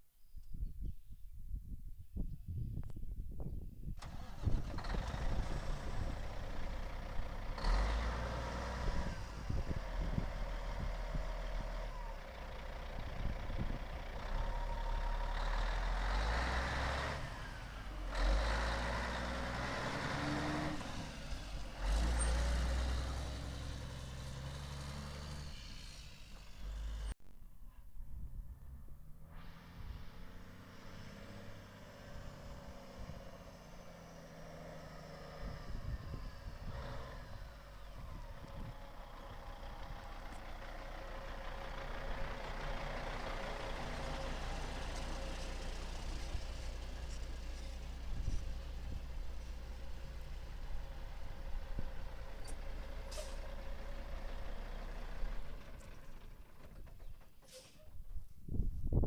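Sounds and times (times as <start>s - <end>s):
truck diesel engine running: 4.0s - 27.2s, 29.8s - 57.6s.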